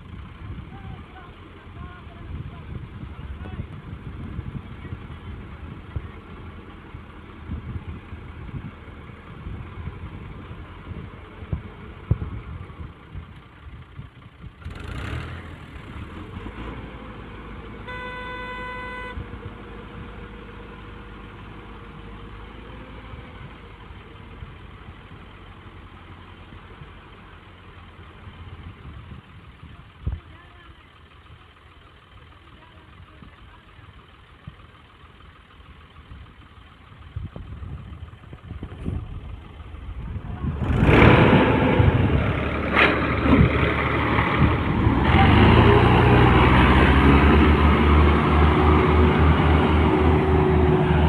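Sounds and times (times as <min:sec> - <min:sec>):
tractor diesel engine running: 0:00.0 - 0:51.0
vehicle horn honking: 0:17.8 - 0:19.2.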